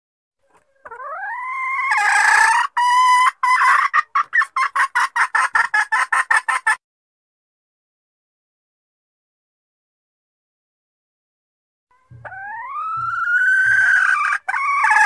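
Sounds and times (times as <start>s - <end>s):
hen calling and clucking: 0.4s - 6.8s, 11.9s - 15.0s.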